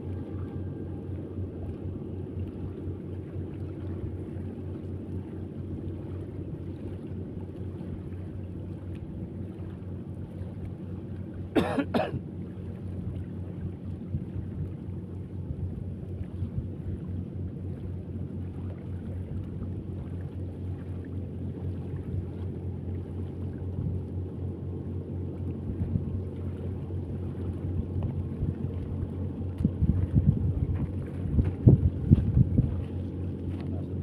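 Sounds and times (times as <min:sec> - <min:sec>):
steady low hum: 0:00.0 - 0:34.0
person coughing: 0:11.6 - 0:12.2.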